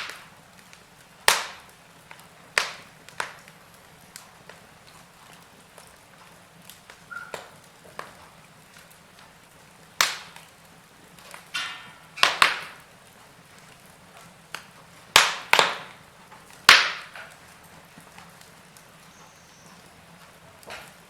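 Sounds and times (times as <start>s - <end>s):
sharp pops from logs: 0.0s - 3.6s, 6.7s - 8.3s, 10.0s - 10.5s, 11.2s - 12.9s, 14.5s - 18.9s
wood fire crackling: 0.0s - 21.0s.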